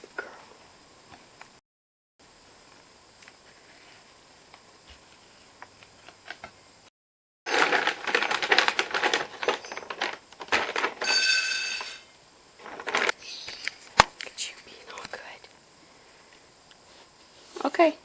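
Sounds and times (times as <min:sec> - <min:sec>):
dog crunching dry food: 0:07.5 - 0:11.0.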